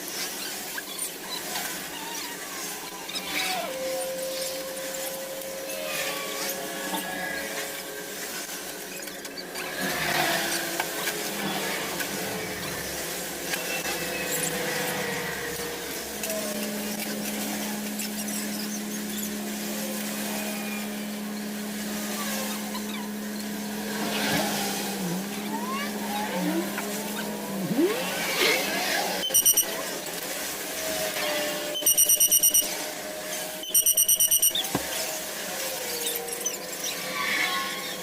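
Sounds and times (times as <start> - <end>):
mechanical hum: 0.0 - 38.0
rapid high-pitched electronic beeping: 29.2 - 29.8, 31.7 - 32.7, 33.6 - 34.6.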